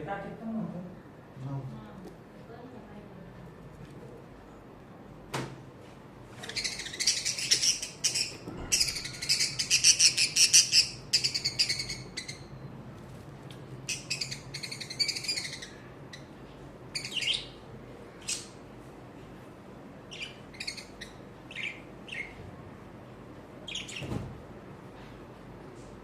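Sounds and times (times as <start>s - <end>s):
budgerigars chirping and chattering: 6.4s - 12.5s, 13.9s - 16.3s, 16.9s - 17.6s, 18.2s - 18.6s, 20.1s - 22.4s, 23.7s - 24.1s.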